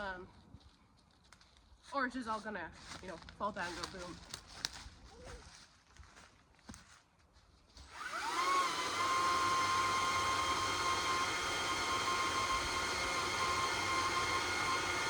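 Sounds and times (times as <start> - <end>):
chainsaw cutting into tree: 7.8 - 15.0.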